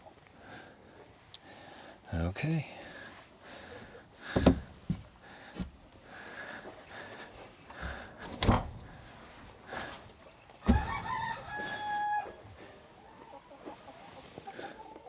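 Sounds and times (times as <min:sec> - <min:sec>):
knocks and thumps: 0:04.2 - 0:05.8, 0:07.8 - 0:09.0, 0:10.7 - 0:10.9.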